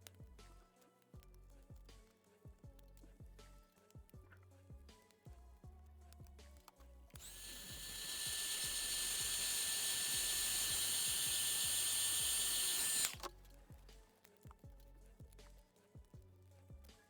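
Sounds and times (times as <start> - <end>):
background music with beat: 0.0 - 17.0
high-speed power tool whining: 7.2 - 13.3.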